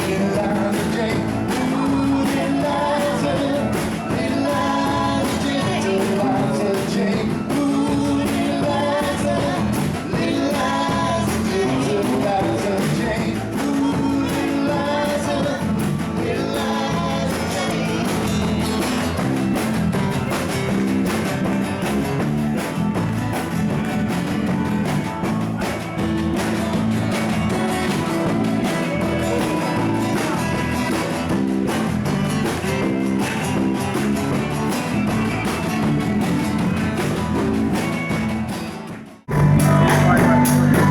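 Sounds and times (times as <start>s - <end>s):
person singing: 0.0s - 18.8s, 39.3s - 40.9s
rock band playing: 0.0s - 40.9s.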